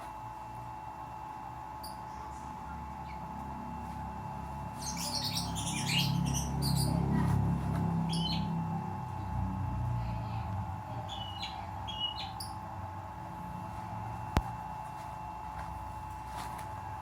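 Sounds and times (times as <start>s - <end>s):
steady electrical hum: 0.0s - 17.0s
small birds chirping: 4.6s - 8.6s, 11.0s - 12.7s.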